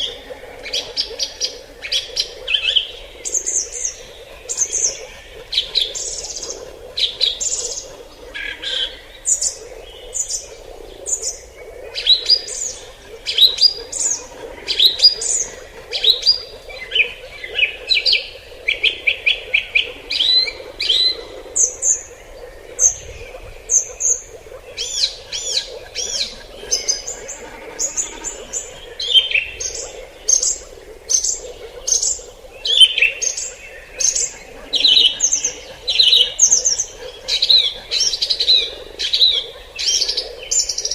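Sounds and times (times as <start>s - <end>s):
birds chirping and whistling: 22.8s - 40.0s.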